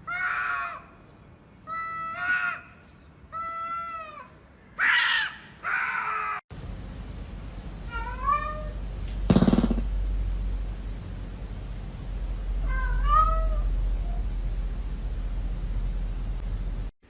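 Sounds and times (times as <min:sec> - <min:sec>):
steady low hum: 0:06.5 - 0:16.9
cat meowing: 0:07.9 - 0:08.8, 0:12.6 - 0:14.2.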